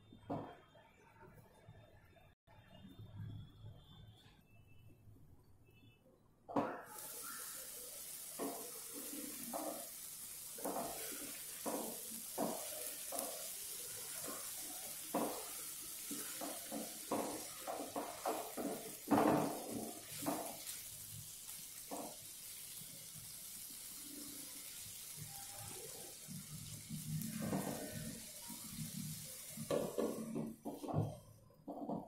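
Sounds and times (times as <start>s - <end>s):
curry sizzling in a pan: 6.7s - 31.2s.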